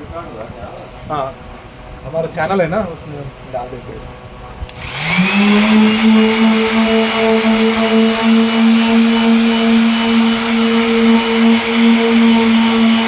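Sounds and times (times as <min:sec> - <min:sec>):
electric sander running: 0:04.6 - 0:13.0.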